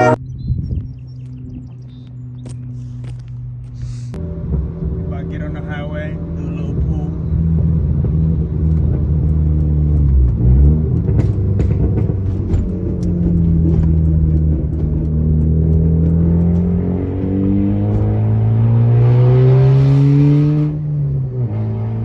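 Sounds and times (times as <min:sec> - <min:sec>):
car engine accelerating: 0:00.0 - 0:00.2, 0:00.8 - 0:22.0.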